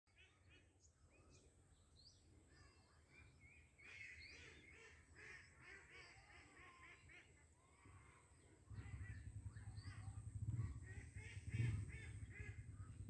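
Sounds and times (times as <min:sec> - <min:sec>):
faint bird chirps: 0:00.1 - 0:13.0
low rumble: 0:08.7 - 0:13.0.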